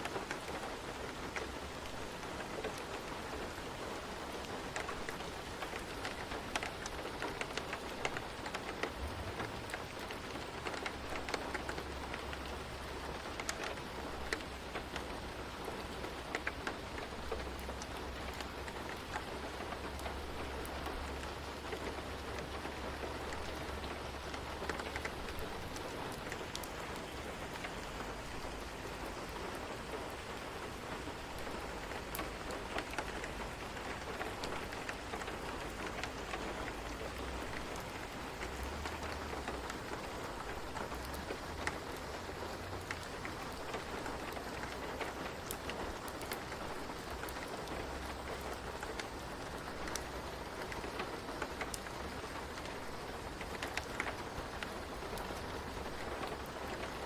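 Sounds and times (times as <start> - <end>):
raindrop ticks: 0.0 - 57.0
steady rain hiss: 0.0 - 57.0.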